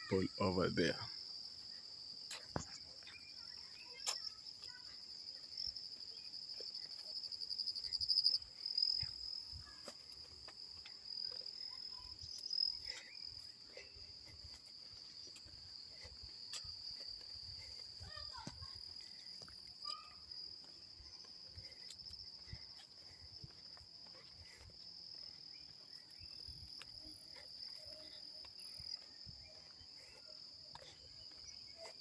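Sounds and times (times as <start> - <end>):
insects trilling: 0.0 - 32.0.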